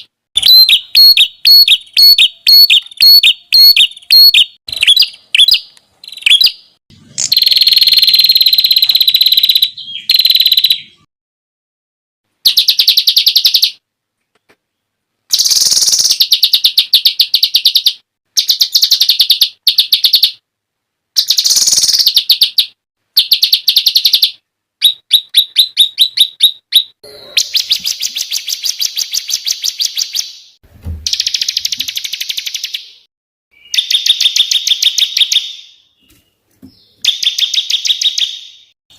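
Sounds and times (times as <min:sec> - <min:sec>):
songbird rapid repeated notes: 0:00.4 - 0:11.1, 0:15.3 - 0:20.4, 0:21.2 - 0:33.0, 0:33.6 - 0:35.8, 0:37.0 - 0:38.8.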